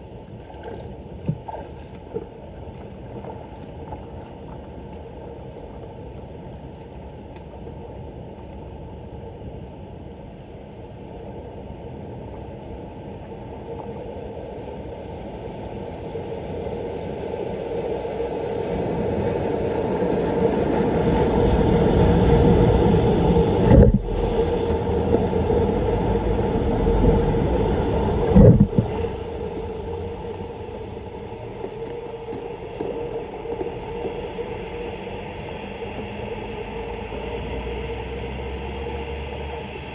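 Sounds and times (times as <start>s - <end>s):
floodwater rushing and gurgling: 17.6s - 39.9s.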